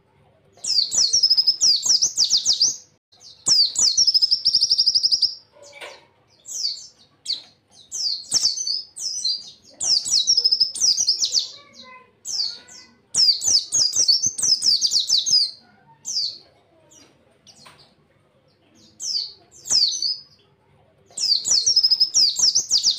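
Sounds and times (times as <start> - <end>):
bird twittering song: 0.6 - 22.9.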